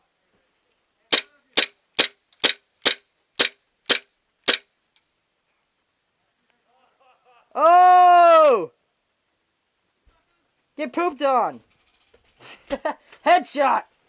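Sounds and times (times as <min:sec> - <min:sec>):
airsoft gun shots: 0:01.1 - 0:04.7.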